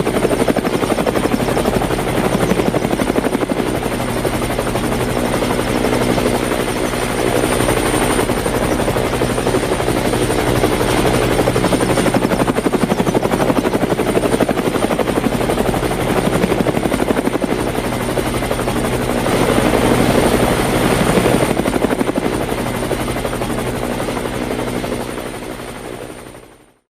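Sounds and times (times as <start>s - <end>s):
helicopter engine and rotor chop: 0.0s - 26.9s.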